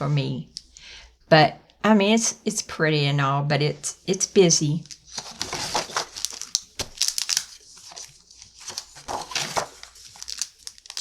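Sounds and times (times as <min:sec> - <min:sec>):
paper pages rustling: 0:04.8 - 0:11.0.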